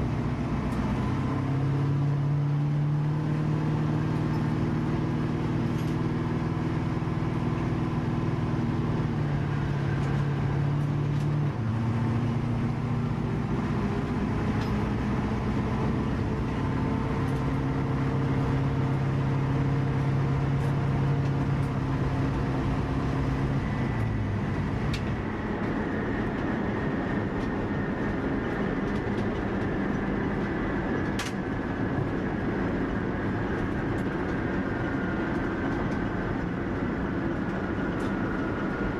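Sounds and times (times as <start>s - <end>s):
car engine rumbling: 0.0s - 38.9s.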